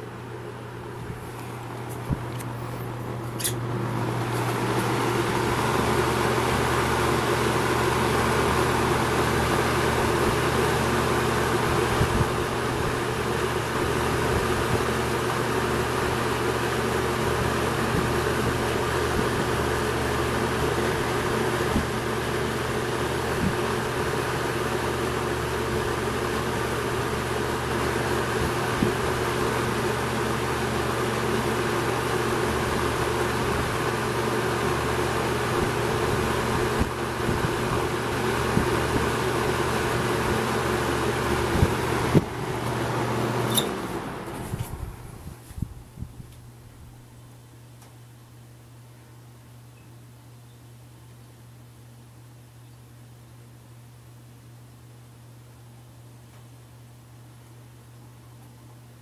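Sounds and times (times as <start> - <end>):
box fan running: 0.0 - 59.0.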